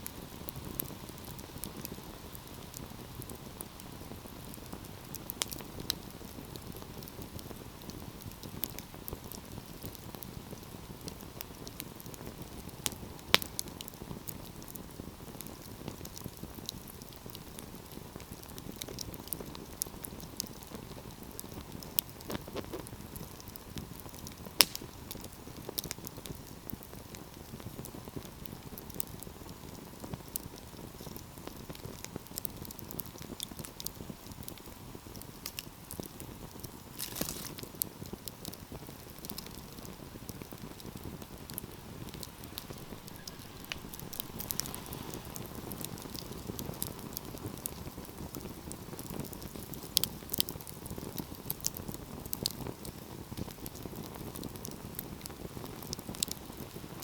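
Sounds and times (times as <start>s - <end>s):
low rumble of flames: 0.0s - 57.0s
small fire crackles: 0.0s - 57.0s
loud fire pops: 24.0s - 26.5s, 36.6s - 56.8s.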